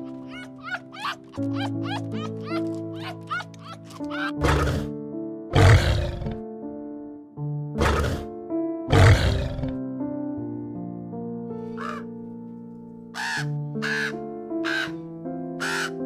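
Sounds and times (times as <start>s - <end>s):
rough animal calls: 0.0s - 4.9s, 5.5s - 6.4s, 8.9s - 9.8s, 11.8s - 12.1s, 13.2s - 15.0s, 15.6s - 16.0s
background music: 0.0s - 16.0s.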